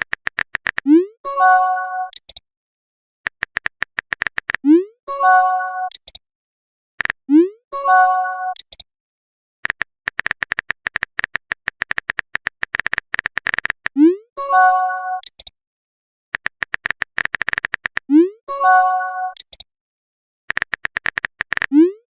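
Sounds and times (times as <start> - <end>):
rapid typing clicks: 0.0 - 0.9, 3.3 - 4.6, 9.6 - 14.0, 16.4 - 18.1, 20.5 - 21.7.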